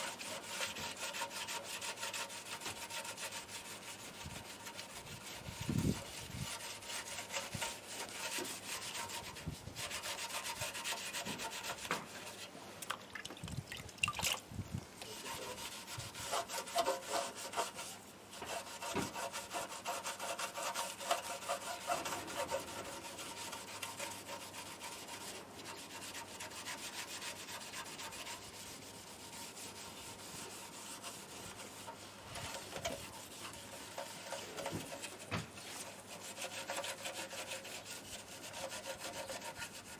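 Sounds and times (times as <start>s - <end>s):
sandpaper rubbing strokes: 0.0s - 12.5s, 15.1s - 39.9s.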